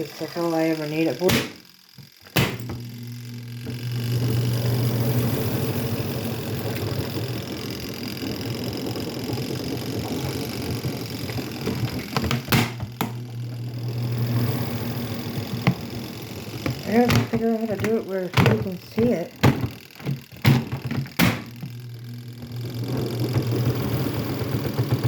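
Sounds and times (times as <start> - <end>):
washing machine motor hum: 0.0 - 25.0
sharp knocks: 2.3 - 2.8, 12.1 - 13.2
churning rattle: 3.8 - 25.0.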